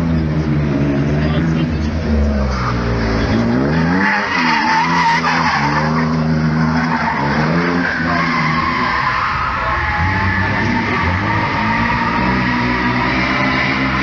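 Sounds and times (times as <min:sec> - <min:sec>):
car engine revving: 0:00.0 - 0:14.0
tyres squealing: 0:03.7 - 0:14.0.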